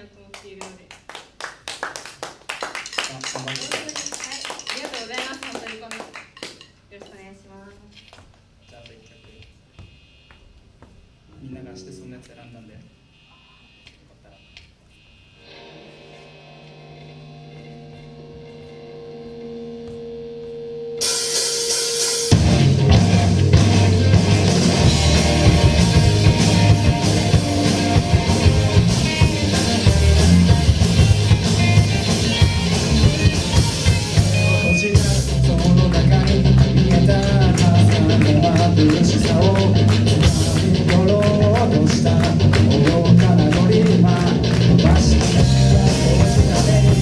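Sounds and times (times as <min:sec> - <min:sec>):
sustained guitar tones: 0:13.1 - 0:47.0
live rock band playing: 0:15.4 - 0:47.0.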